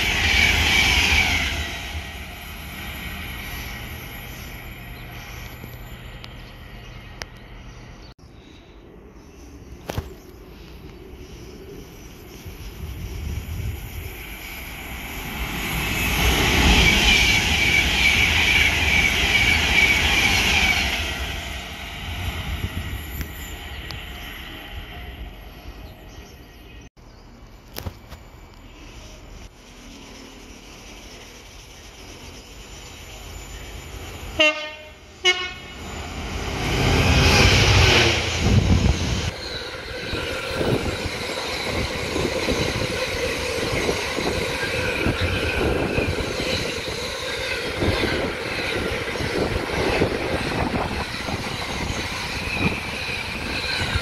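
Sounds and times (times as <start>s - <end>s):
train wheels rushing on track: 0.0s - 7.6s, 9.8s - 26.5s, 28.8s - 54.0s
train horn: 34.4s - 35.9s.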